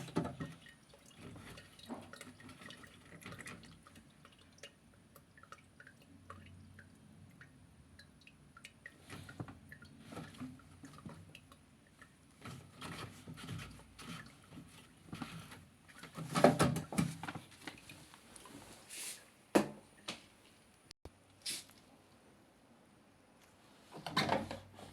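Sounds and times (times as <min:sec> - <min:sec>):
water dripping: 0:00.4 - 0:12.4
knocks and handling noises: 0:12.4 - 0:17.9.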